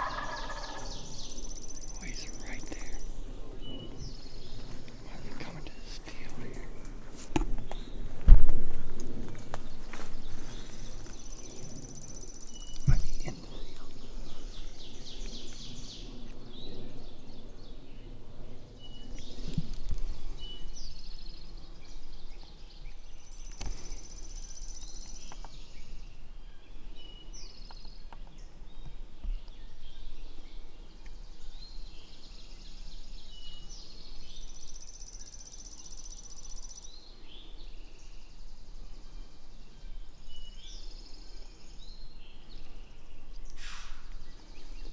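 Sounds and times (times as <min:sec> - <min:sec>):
songbird trilling song: 0:00.0 - 0:08.2, 0:08.9 - 0:44.9
rustling: 0:02.0 - 0:11.9.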